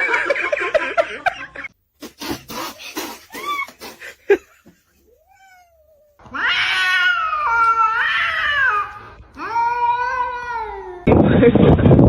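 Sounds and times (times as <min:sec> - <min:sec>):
cat yowling: 0:05.1 - 0:11.1.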